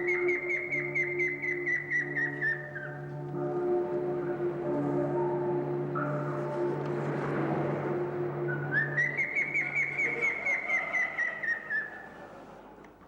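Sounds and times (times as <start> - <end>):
bird song of whistled notes: 0.0 - 3.1, 8.5 - 12.2
low steady drone: 0.0 - 11.2.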